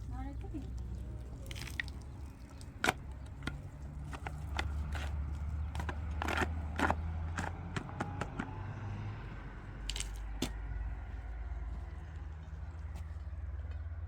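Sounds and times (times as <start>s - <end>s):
scraping: 2.8s - 8.6s.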